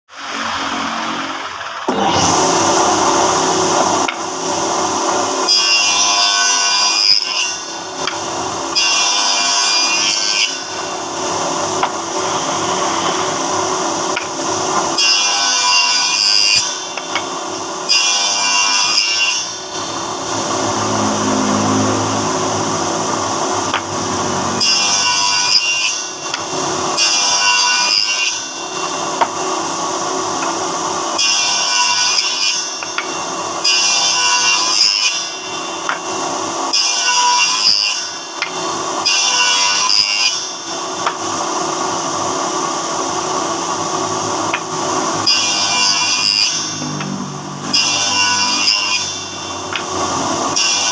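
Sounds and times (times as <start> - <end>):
woodworking machine cutting wood: 0.1 - 50.9.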